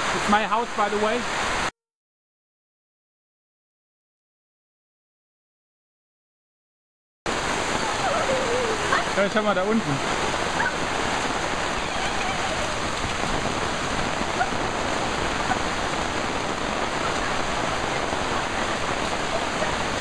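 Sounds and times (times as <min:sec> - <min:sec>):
heavy rain hissing: 0:00.0 - 0:01.7, 0:07.3 - 0:20.0.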